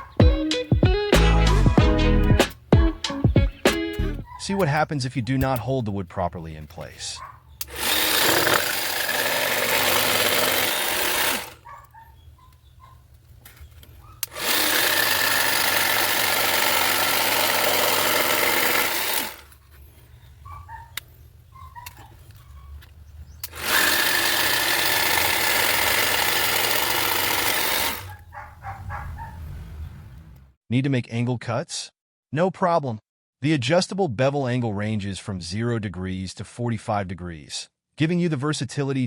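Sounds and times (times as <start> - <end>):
jigsaw cutting wood: 7.6 - 11.6, 14.2 - 19.6, 23.4 - 28.2.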